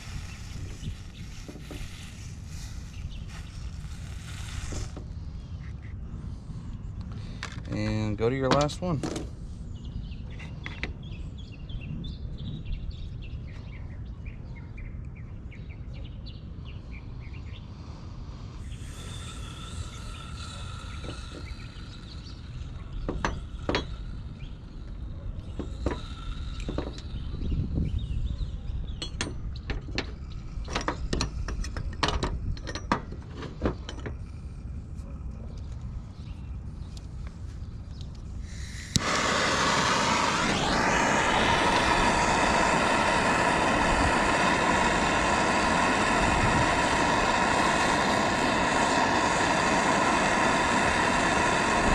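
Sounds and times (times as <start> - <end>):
bright hiss with high tones: 0.0 - 5.1, 18.6 - 27.8, 38.4 - 51.9
soldering torch flame: 0.0 - 5.4, 18.6 - 28.0, 38.4 - 51.9.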